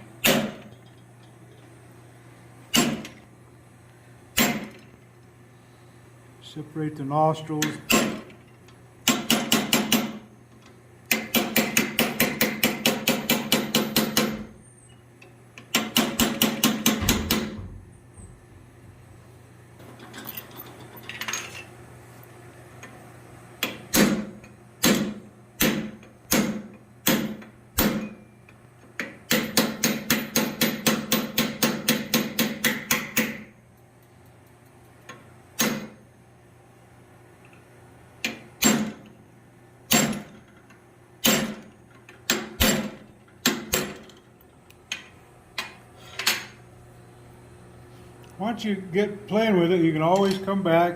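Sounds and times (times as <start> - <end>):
hammer striking steel on anvil: 0.2 - 0.7, 4.4 - 4.8, 11.1 - 14.5, 23.6 - 28.3, 29.3 - 33.5, 39.9 - 40.3, 41.2 - 41.6.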